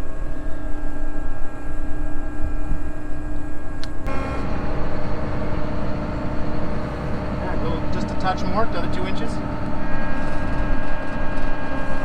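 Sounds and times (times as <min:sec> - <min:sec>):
diesel engine rumbling: 0:04.0 - 0:12.0.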